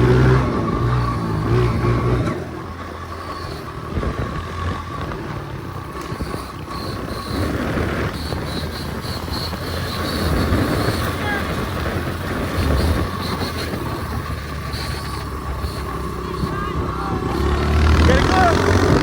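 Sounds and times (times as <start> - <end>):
engine running: 0.0 - 19.0
wind buffeting microphone: 0.0 - 19.0.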